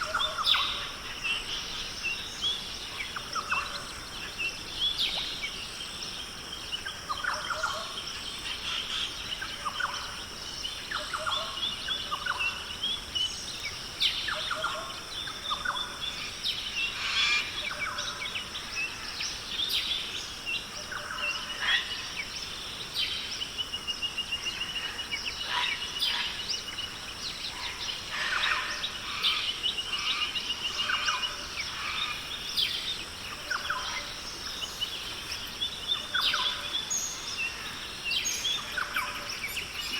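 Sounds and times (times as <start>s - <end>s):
steady high-pitched hiss: 0.0s - 39.9s
birds calling: 20.7s - 39.9s.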